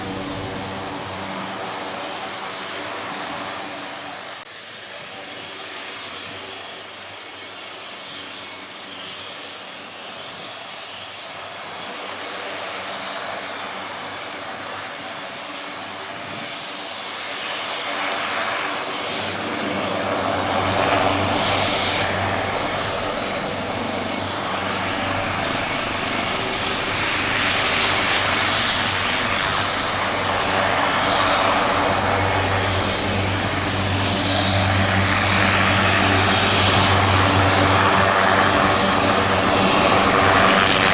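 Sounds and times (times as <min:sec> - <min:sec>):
helicopter engine and rotor: 0:00.0 - 0:40.9
deep rotor throb: 0:20.2 - 0:40.4.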